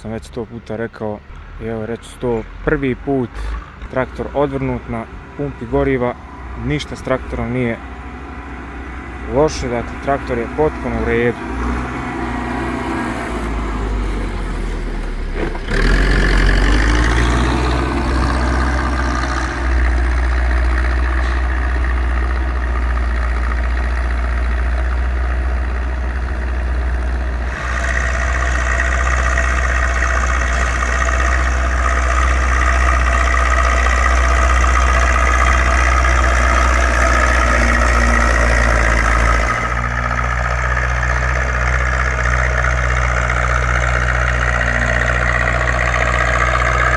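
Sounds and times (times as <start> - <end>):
tractor diesel engine under load: 0.0 - 46.9.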